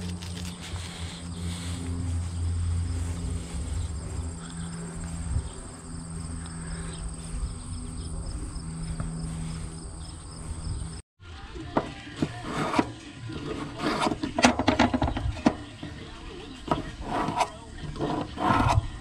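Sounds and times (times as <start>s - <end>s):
insects trilling: 0.0s - 11.0s
low rumble: 0.0s - 11.0s.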